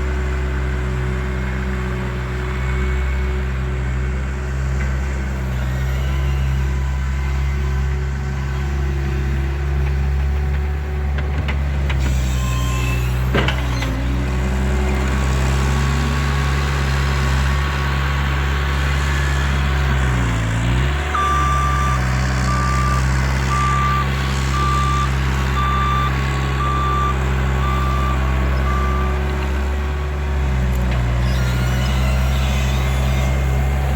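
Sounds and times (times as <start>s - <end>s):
loader engine running: 0.0s - 33.9s
reversing alarm beeping: 21.1s - 29.2s.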